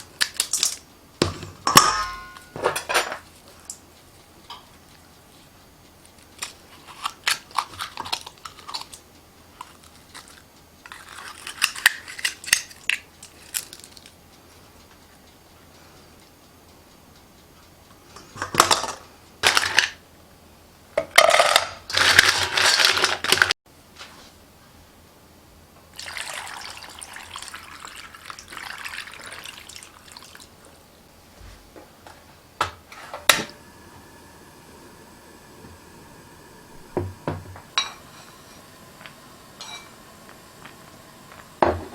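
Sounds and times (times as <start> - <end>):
utensils knocking: 36.8 - 41.9.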